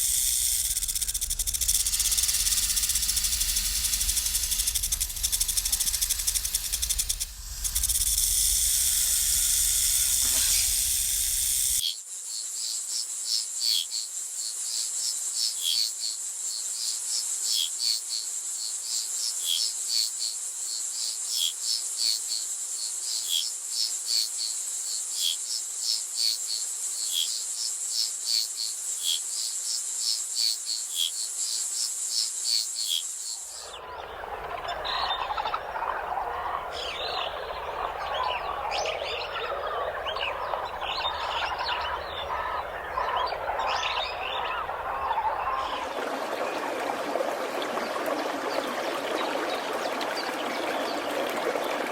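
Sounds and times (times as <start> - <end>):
insects buzzing: 0.0 - 11.8, 32.9 - 51.1
insect trill with chirps: 0.0 - 21.2, 21.8 - 46.8
low rumble: 0.1 - 11.6.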